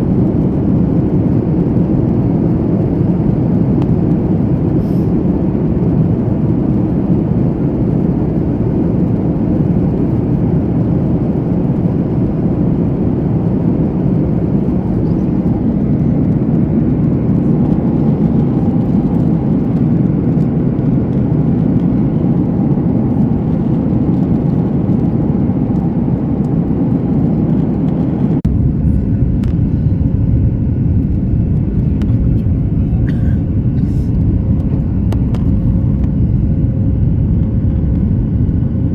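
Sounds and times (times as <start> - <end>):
airliner cabin rumble: 0.0 - 38.9.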